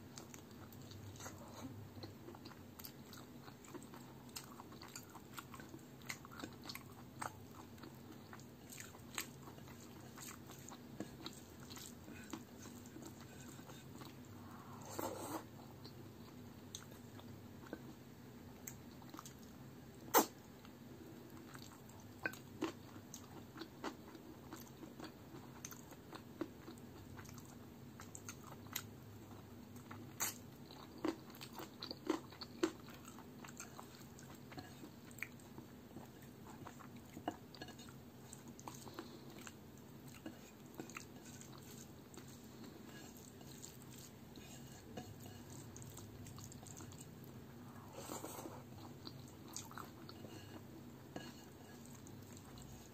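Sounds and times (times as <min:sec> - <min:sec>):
wet chewing and lip-smacking: 0:21.4 - 0:47.4, 0:48.8 - 0:52.9
fingers mixing rice rustle: 0:40.2 - 0:46.8.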